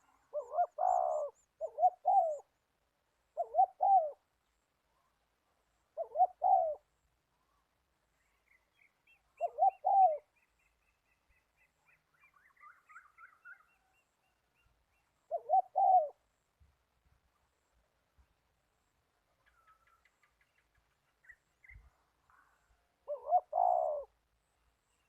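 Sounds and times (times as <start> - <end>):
dove cooing: 0.0 - 2.5, 3.4 - 4.2, 6.0 - 6.8, 9.4 - 10.3, 15.3 - 16.2, 23.0 - 24.2
small bird chirping: 8.2 - 16.2, 19.3 - 22.4.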